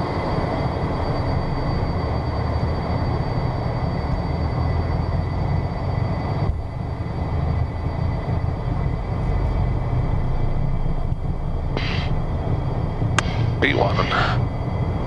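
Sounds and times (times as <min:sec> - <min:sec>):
jet engines rumbling with high whine: 0:00.0 - 0:15.0
short burst of noise: 0:11.8 - 0:12.1.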